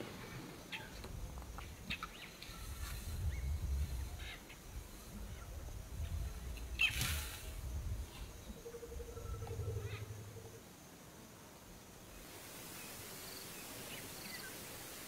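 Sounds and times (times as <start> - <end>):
low rumbling noise: 2.6 - 10.6.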